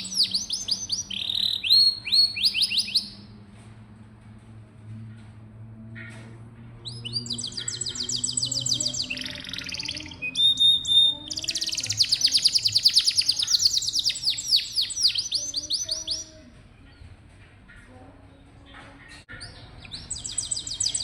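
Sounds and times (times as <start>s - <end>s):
canary singing trills: 0.0s - 3.3s, 6.8s - 17.1s, 18.5s - 21.0s.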